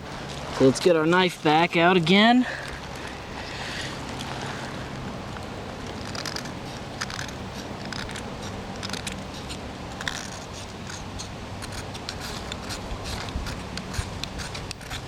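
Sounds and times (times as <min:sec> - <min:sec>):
knife blade scraping metal block: 0:06.1 - 0:15.0.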